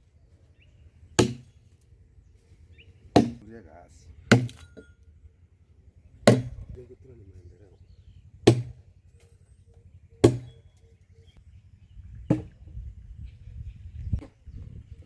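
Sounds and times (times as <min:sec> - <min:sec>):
blade chopping strikes: 0:01.2 - 0:01.5, 0:03.2 - 0:03.5, 0:04.3 - 0:04.9, 0:06.2 - 0:06.7, 0:08.4 - 0:08.8, 0:10.2 - 0:10.6.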